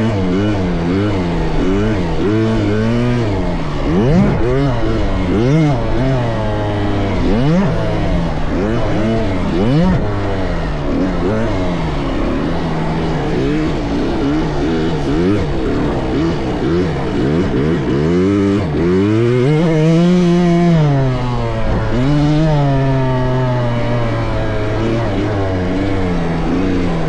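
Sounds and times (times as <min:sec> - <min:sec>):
dirt bike engines revving: 0:00.0 - 0:27.0.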